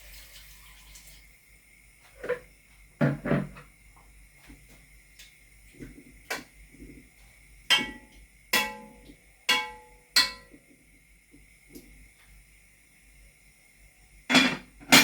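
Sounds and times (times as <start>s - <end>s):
metal cookware clanking: 7.7s - 10.6s, 14.3s - 15.0s.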